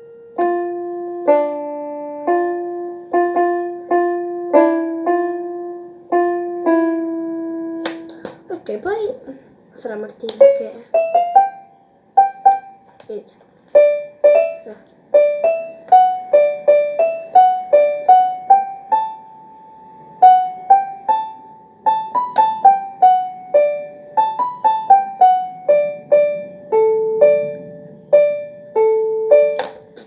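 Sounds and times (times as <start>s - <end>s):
electronic keyboard melody: 0.0s - 8.6s, 10.4s - 12.9s, 13.8s - 30.0s.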